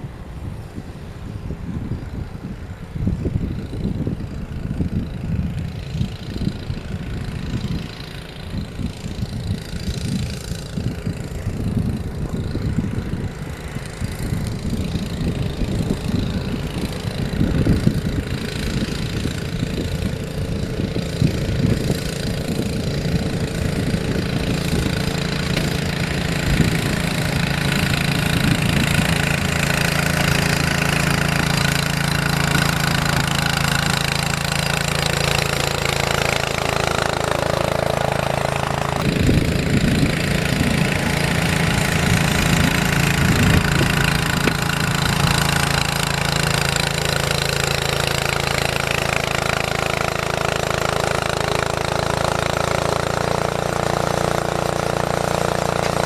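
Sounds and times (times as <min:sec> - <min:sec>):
snow-clearing machine engine: 0:00.0 - 0:56.0.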